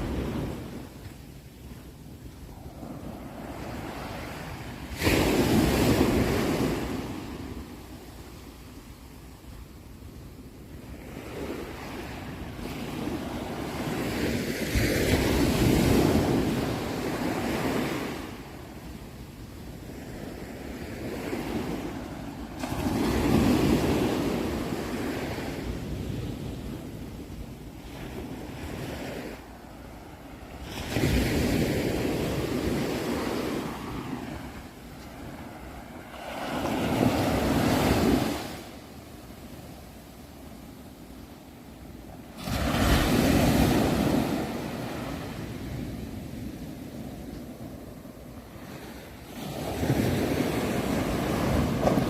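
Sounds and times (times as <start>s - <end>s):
ocean waves breaking: 0.0s - 8.4s, 19.9s - 52.0s.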